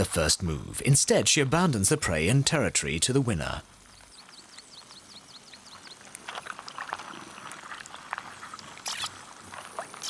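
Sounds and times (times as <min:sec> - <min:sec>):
small animal chirps: 0:08.8 - 0:09.2
animal clicks and squeaks: 0:08.8 - 0:10.0.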